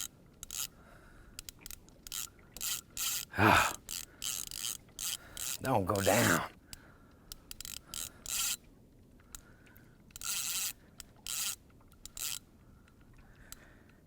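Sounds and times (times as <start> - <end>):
fishing reel rasping: 0.0 - 0.7, 1.4 - 5.6, 7.4 - 8.6, 10.2 - 12.5.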